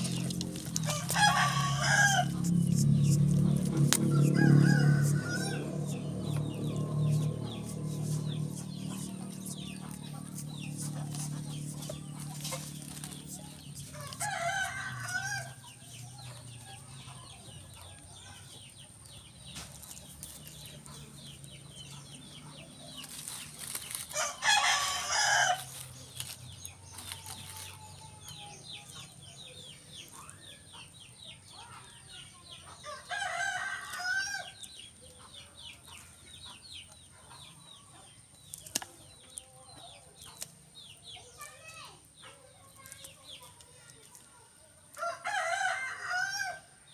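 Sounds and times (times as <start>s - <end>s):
low steady hum: 0.0s - 18.4s
rooster crowing: 0.8s - 2.6s, 4.0s - 6.1s, 14.0s - 15.6s, 24.2s - 25.7s, 32.8s - 34.6s, 45.0s - 46.6s.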